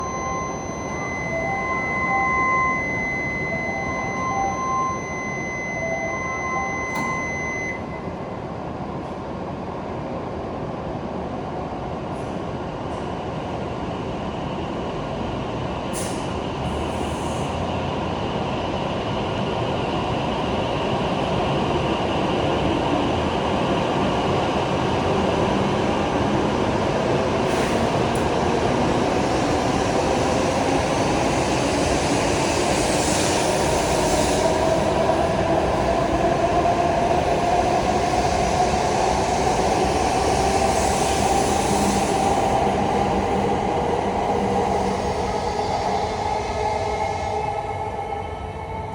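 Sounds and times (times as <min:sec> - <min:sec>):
electronic platform tone: 0:00.0 - 0:08.1
train running noise: 0:12.1 - 0:48.9.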